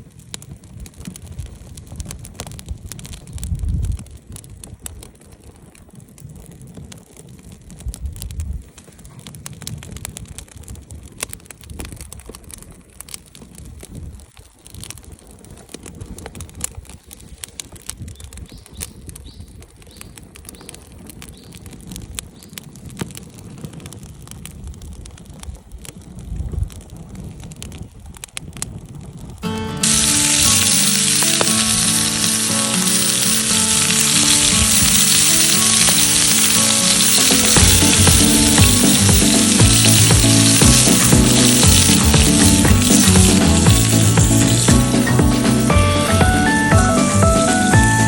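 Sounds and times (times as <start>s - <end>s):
campfire crackling: 0.0s - 48.0s.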